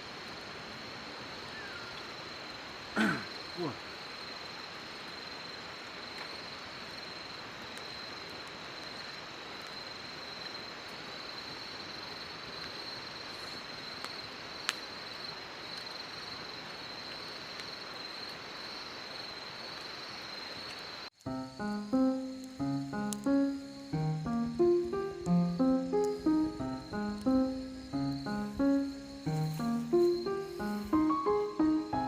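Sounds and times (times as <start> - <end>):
constant hiss: 0.0 - 32.0
insects trilling: 0.0 - 32.0
music: 21.3 - 32.0.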